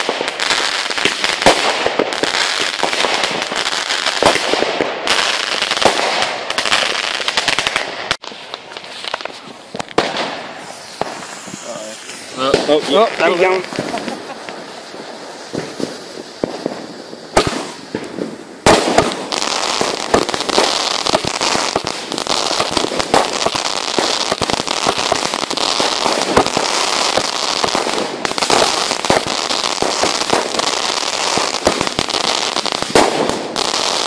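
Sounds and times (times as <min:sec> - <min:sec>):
fireworks crackling and popping: 0:00.0 - 0:34.0
firework bang: 0:07.3 - 0:32.1, 0:32.8 - 0:33.7.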